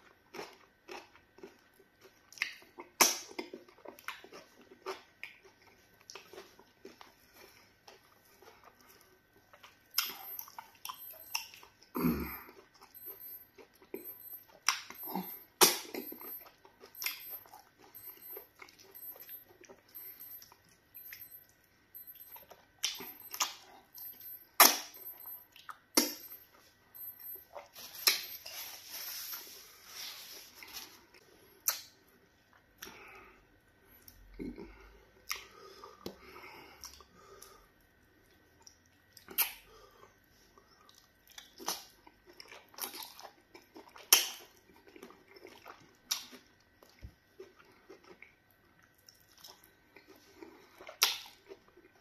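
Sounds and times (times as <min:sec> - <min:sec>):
wet chewing and mouth clicks: 0:00.0 - 0:11.9, 0:12.5 - 0:21.7, 0:40.8 - 0:52.0.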